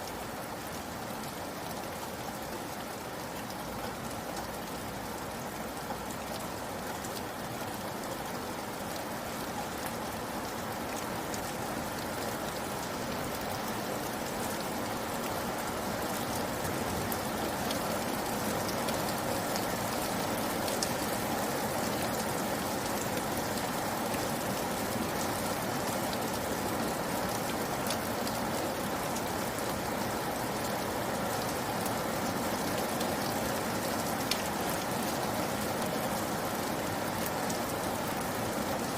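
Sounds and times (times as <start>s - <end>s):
rain falling: 0.0s - 38.9s
close raindrop ticks: 21.8s - 38.3s.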